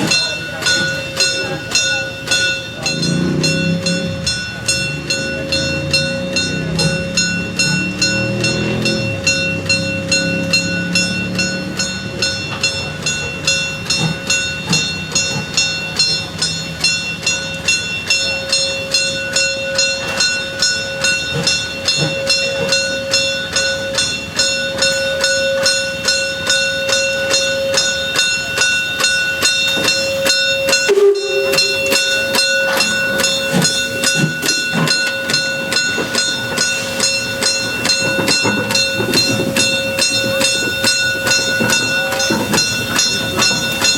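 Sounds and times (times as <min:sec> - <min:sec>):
steady tones: 0:00.0 - 0:43.9
steam locomotive exhaust beats: 0:00.0 - 0:43.9
steam hiss: 0:20.2 - 0:43.9.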